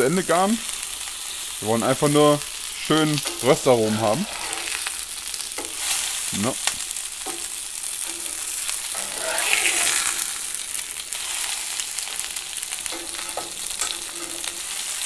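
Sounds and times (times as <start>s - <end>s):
fish sizzling in oil: 0.0s - 15.0s
metal spatula scraping pan: 3.2s - 6.3s, 7.3s - 15.0s.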